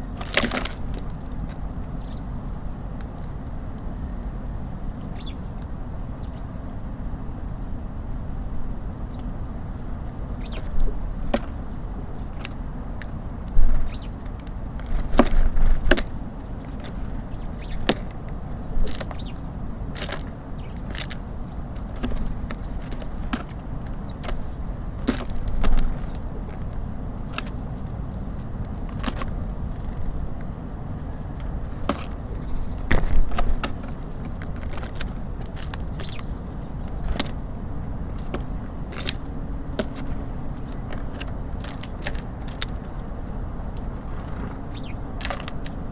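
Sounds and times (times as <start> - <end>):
steady low rumble: 0.0 - 45.9
birds tapping and knocking: 10.0 - 45.9.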